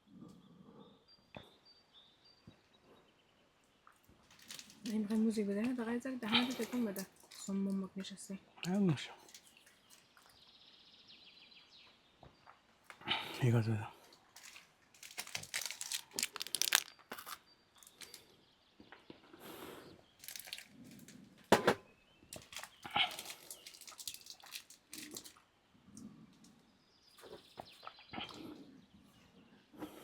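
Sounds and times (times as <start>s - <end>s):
rustling and crinkling: 3.8s - 7.8s, 14.1s - 18.3s, 20.2s - 21.6s, 22.3s - 25.5s.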